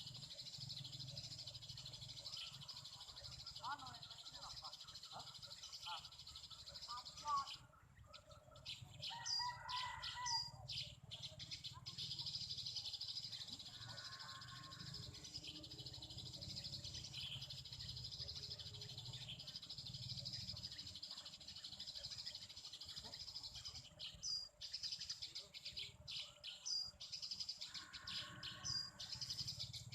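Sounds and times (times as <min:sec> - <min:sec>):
sparrows chirping: 0:00.0 - 0:29.9.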